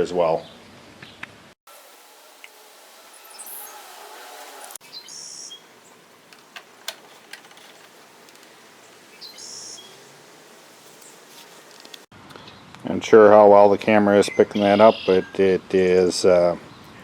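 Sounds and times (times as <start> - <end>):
birds chirping: 1.8 - 12.7, 14.2 - 15.5.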